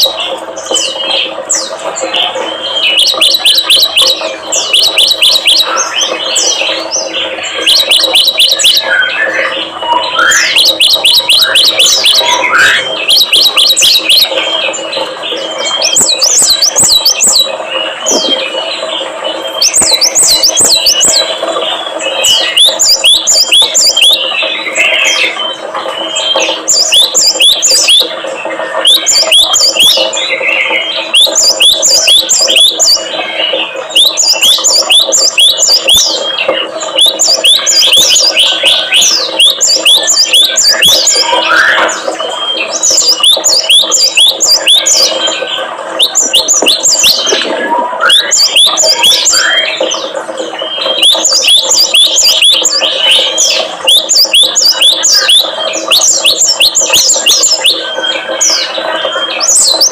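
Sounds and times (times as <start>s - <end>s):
small songbirds calling: 0.0s - 59.9s.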